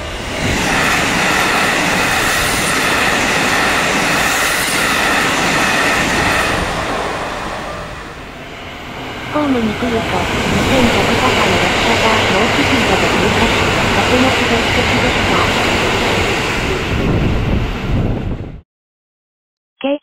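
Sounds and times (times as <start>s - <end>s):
train wheels rushing on rails: 0.0s - 18.2s
high steady tone: 9.4s - 15.8s.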